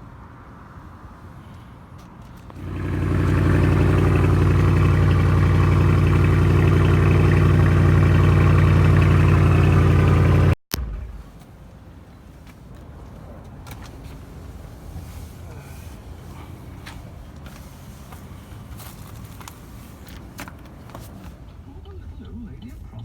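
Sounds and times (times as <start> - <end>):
motor vehicle engine running: 2.5 - 23.0.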